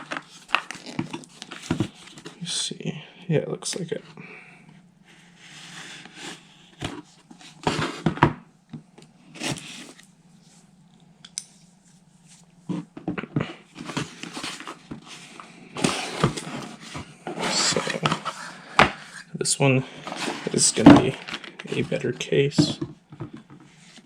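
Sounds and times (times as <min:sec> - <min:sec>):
packing material rustling: 0:00.0 - 0:02.3.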